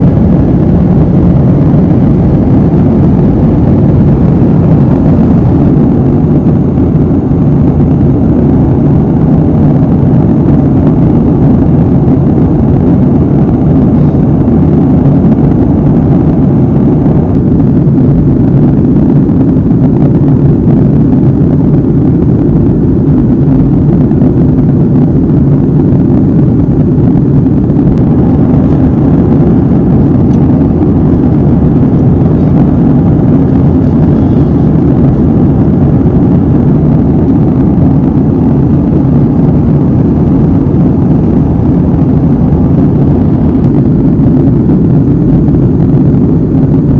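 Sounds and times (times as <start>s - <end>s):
faint high whine: 0.0s - 46.9s
airliner cabin rush: 22.6s - 46.2s.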